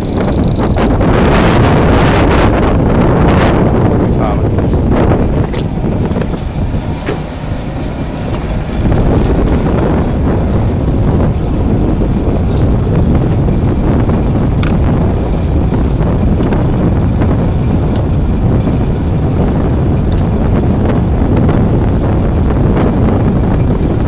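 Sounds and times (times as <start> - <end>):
boat engine and hull rush: 0.0 - 24.0
wind buffeting microphone: 0.0 - 24.0
sharp click: 14.6 - 14.8.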